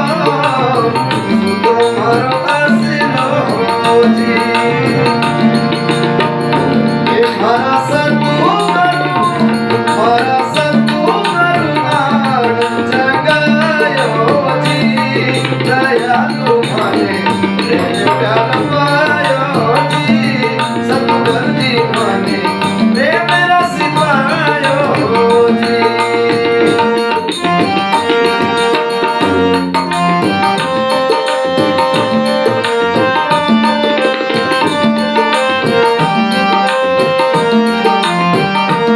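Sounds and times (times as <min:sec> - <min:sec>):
hand drum beat: 0:00.0 - 0:38.9
wavering melody line: 0:00.0 - 0:38.9
sustained held chords: 0:02.9 - 0:09.9, 0:24.3 - 0:38.9.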